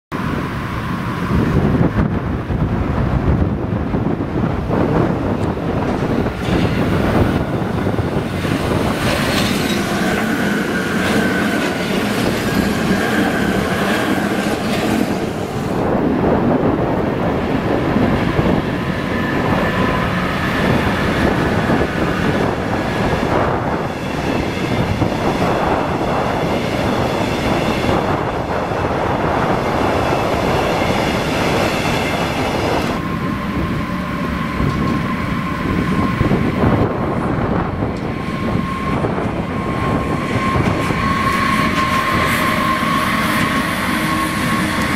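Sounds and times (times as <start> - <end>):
train wheels clattering on rails: 4.8 - 15.9, 17.7 - 44.9
high whining squeal: 6.4 - 16.0, 17.4 - 44.9.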